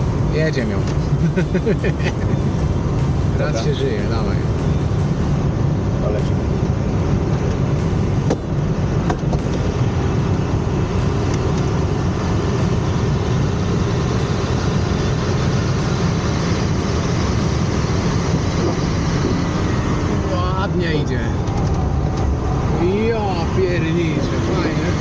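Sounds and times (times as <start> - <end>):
rush of airflow around cockpit: 0.0 - 25.0.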